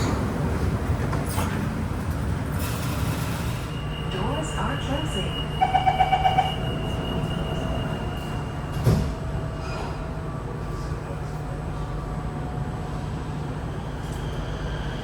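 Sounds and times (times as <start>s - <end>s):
train car low hum: 0.0s - 15.0s.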